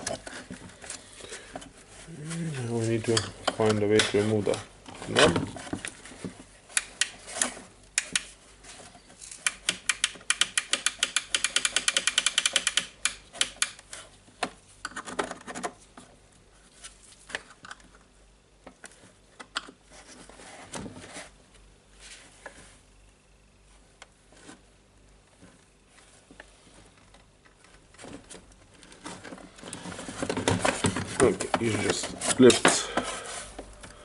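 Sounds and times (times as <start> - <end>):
hands clicking plastic radio parts: 6.7 - 8.4, 9.3 - 15.7.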